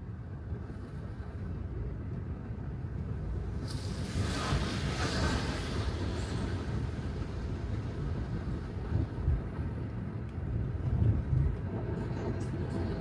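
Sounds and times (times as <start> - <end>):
car tyre noise on wet road: 3.2 - 11.6.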